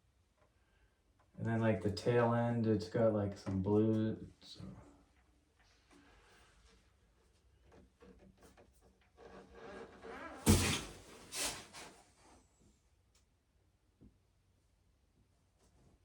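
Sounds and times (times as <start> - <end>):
loud thud: 10.5 - 11.0.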